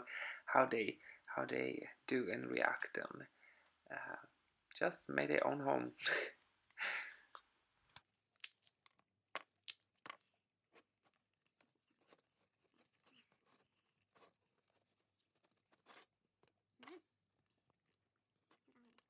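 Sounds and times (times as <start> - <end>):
soft rustles of handling: 6.3 - 19.0.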